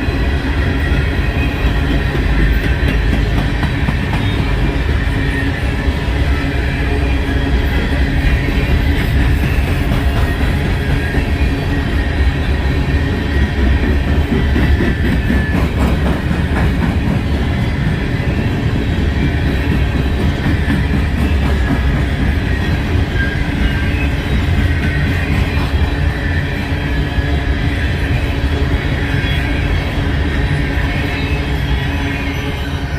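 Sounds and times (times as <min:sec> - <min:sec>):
freight train rumbling past: 0:00.0 - 0:32.9
wheels clicking over rail joints: 0:00.9 - 0:05.0.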